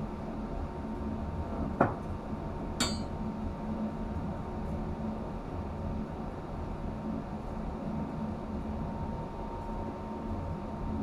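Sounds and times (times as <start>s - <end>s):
low machinery hum: 0.0s - 11.0s
sharp metallic clink: 2.8s - 3.1s.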